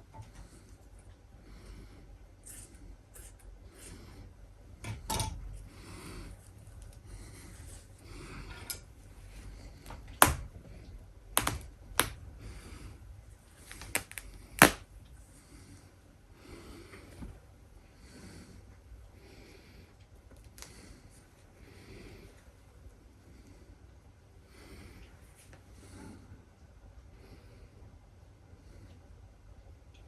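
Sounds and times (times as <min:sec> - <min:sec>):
sharp clicks or snaps: 0:11.4 - 0:12.2, 0:13.7 - 0:14.8.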